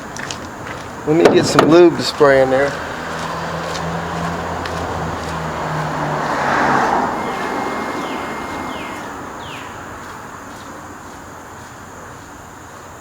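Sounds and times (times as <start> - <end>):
vehicle passing on road: 2.7 - 10.2.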